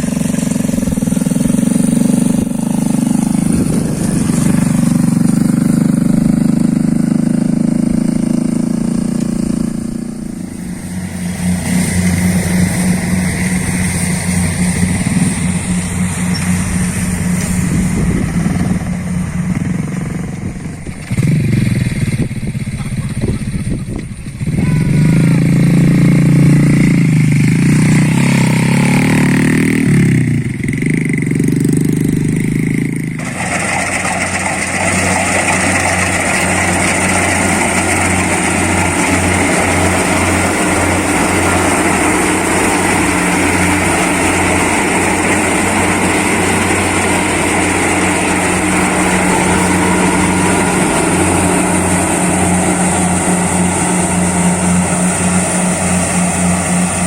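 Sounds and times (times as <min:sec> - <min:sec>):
combine harvester engine: 0:00.0 - 0:57.0
noisy machine drone: 0:00.0 - 0:57.0.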